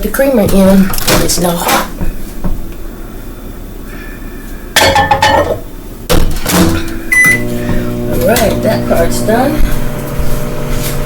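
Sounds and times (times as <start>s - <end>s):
microwave oven humming: 0.0s - 11.0s
short keypad beep: 7.1s - 7.4s.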